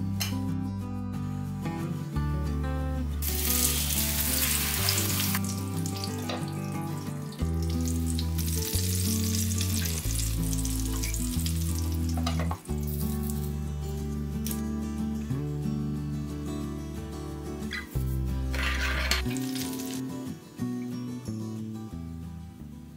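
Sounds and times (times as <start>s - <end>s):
zucchini sizzling in hot oil: 3.2s - 13.4s, 18.6s - 20.0s.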